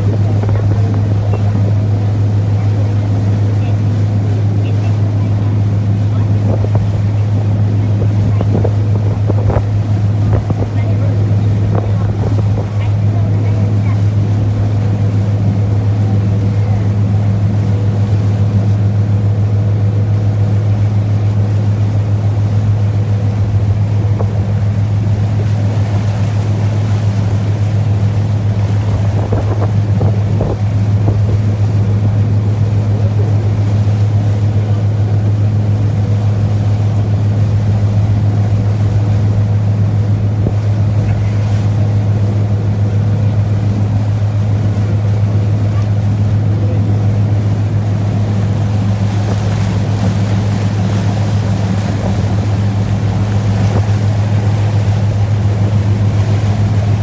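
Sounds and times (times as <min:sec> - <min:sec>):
ferry diesel engine humming: 0:00.0 - 0:57.0
water noise: 0:00.0 - 0:57.0
wind noise: 0:06.4 - 0:12.8, 0:28.4 - 0:32.2.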